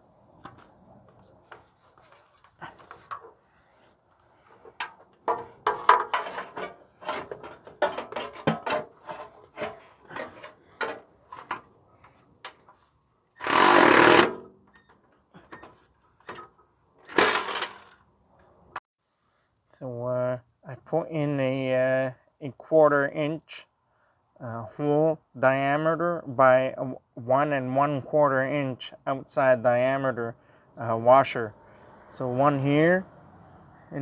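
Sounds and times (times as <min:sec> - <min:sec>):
metal tools clinking: 0:04.6 - 0:11.6
power tool driving bolts: 0:13.4 - 0:14.5, 0:17.1 - 0:17.9.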